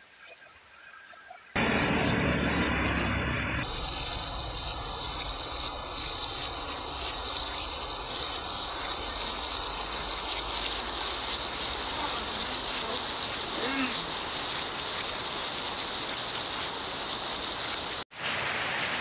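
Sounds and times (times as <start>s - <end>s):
heavy rain on a tiled patio: 6.4s - 19.0s.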